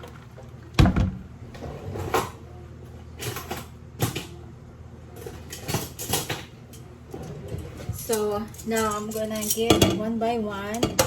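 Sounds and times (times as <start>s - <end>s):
kitchenware knocks and clicks: 7.7s - 10.1s, 10.7s - 11.0s.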